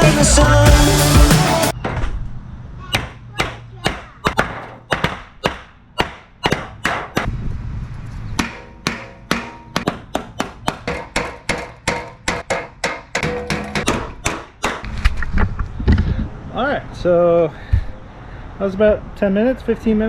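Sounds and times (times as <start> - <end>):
hammer on sheet metal: 2.9 - 7.3, 8.4 - 14.9.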